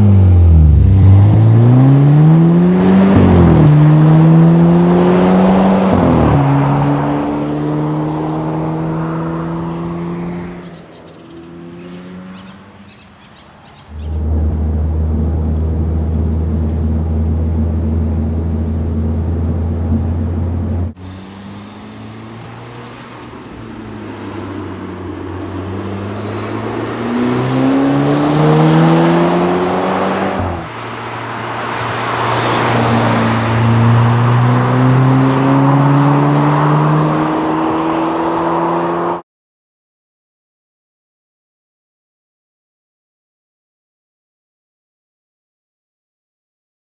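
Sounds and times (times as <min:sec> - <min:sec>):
car engine accelerating: 0:00.0 - 0:39.2.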